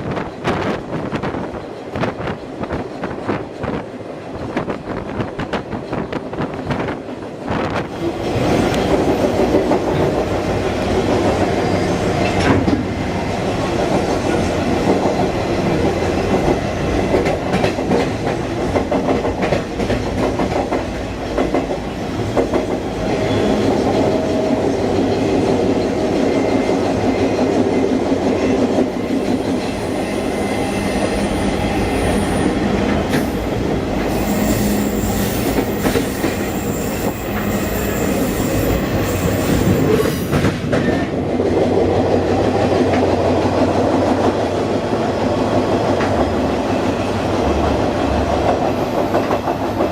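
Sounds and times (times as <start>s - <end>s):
rail clicking: 0.0s - 29.8s, 38.4s - 49.9s
train wheels rumbling on rails: 0.0s - 49.9s
wheel squeal: 34.1s - 40.3s.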